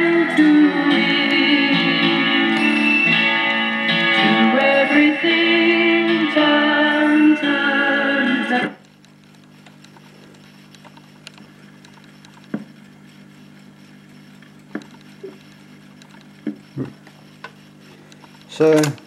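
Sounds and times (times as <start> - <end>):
phonograph low hum: 0.0 - 19.0
faint crackly ticks: 8.8 - 12.8, 14.1 - 16.5.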